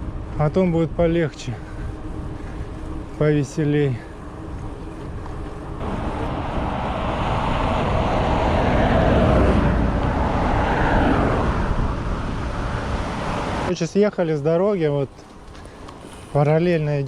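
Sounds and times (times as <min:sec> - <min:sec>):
vehicle passing: 0:01.5 - 0:13.7
wind on microphone: 0:04.0 - 0:13.7.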